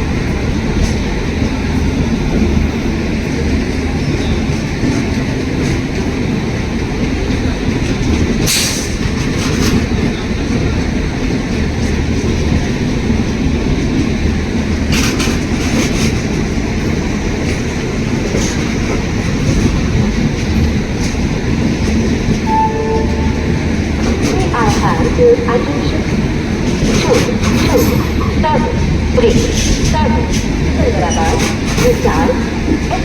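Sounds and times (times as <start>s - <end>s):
passenger train rumbling past: 0.0s - 33.0s
wheels clattering over rail joints: 14.6s - 22.5s, 23.6s - 33.0s.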